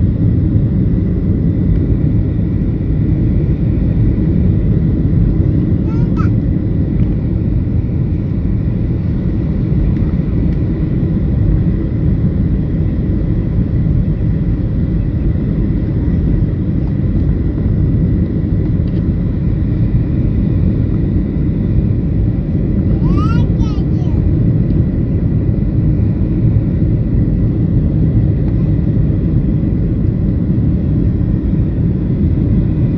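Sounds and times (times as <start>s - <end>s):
airplane cabin engine drone: 0.0s - 32.9s.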